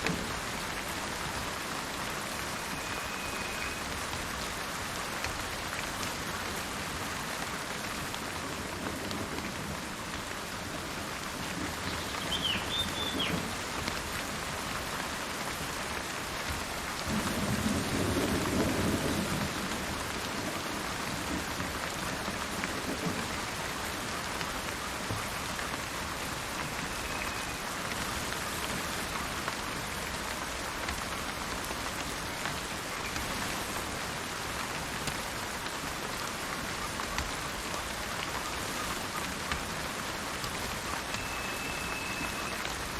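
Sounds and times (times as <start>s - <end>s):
steady rain: 0.0s - 42.9s
bird call: 2.5s - 3.9s, 11.9s - 13.5s, 26.6s - 27.7s, 40.9s - 42.7s
thunder rumbling: 17.1s - 23.4s.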